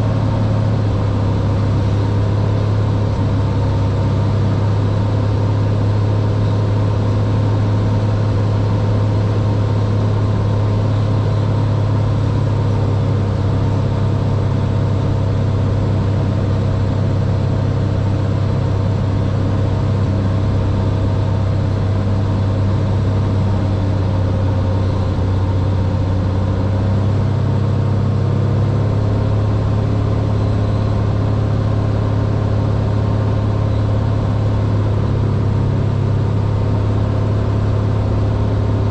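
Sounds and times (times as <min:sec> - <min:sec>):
airplane engine and propeller drone: 0:00.0 - 0:38.9.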